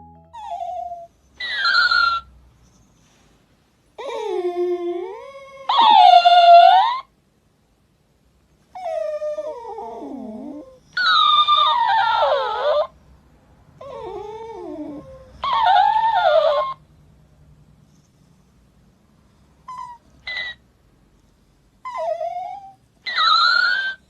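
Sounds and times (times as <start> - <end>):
dog howling and whining: 4.0 - 7.1, 8.7 - 12.9, 13.8 - 16.8, 19.7 - 20.6, 21.8 - 24.0.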